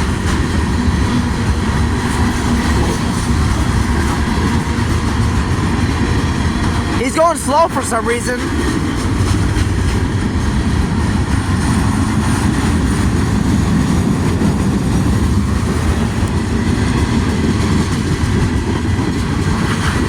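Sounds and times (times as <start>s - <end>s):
freight train wheels rumbling: 0.0s - 20.0s.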